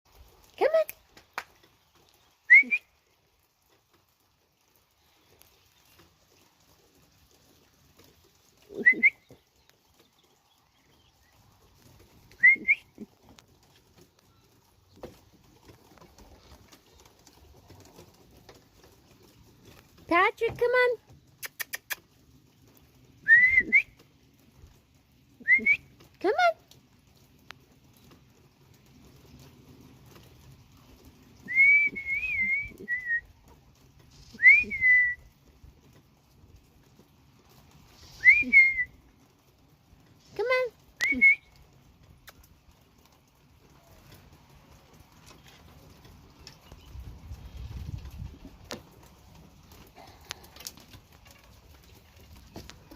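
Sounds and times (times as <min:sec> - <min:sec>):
person whistling: 0:12.4 - 0:12.8, 0:23.3 - 0:23.9, 0:31.5 - 0:33.2, 0:34.4 - 0:35.2, 0:38.2 - 0:38.9
person whistling two rising notes: 0:23.3 - 0:23.9, 0:34.4 - 0:35.2, 0:38.2 - 0:38.9.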